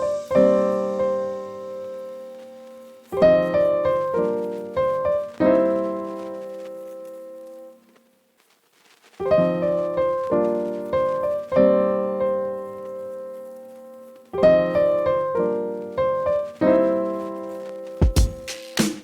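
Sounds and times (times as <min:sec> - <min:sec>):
piano chords ringing: 0:00.0 - 0:07.7, 0:09.3 - 0:18.6.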